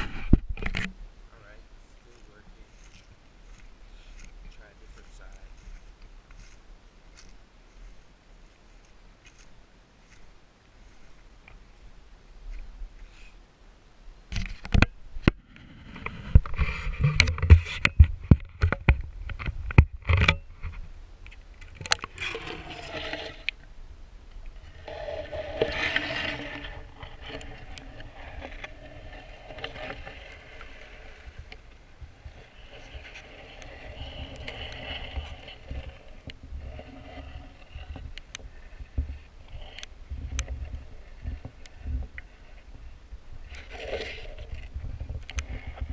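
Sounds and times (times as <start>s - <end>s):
water swishing: 21.7s - 23.6s, 24.4s - 45.8s.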